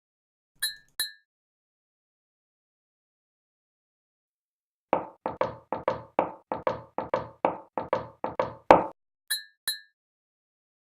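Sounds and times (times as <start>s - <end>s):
knocks: 5.0s - 9.0s.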